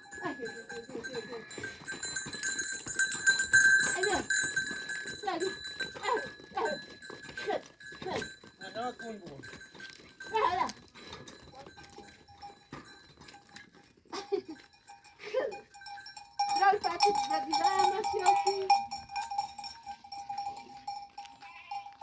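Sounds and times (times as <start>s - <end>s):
steady ringing tone: 0.0s - 10.2s, 14.6s - 22.0s
farm animals bleating: 0.1s - 2.1s, 17.5s - 18.9s, 21.2s - 22.0s.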